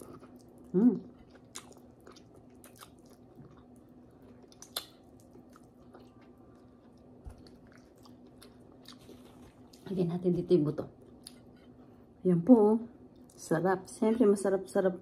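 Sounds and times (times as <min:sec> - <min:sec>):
person chewing: 0:00.0 - 0:09.9
faint steady hum: 0:00.0 - 0:15.0
wet clicks and smacks: 0:04.5 - 0:05.7.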